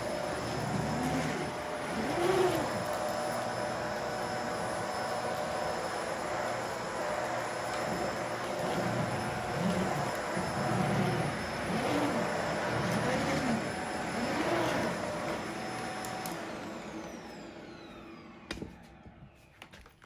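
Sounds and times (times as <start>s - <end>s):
vacuum motor winding down: 0.0s - 19.4s
vacuum cleaner running: 0.0s - 19.7s
click: 16.0s - 16.4s.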